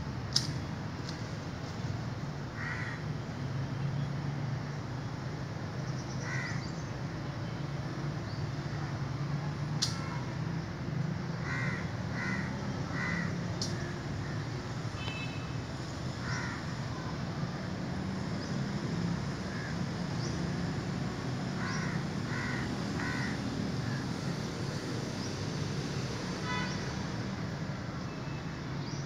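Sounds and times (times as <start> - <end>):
birds calling: 21.6 - 24.1.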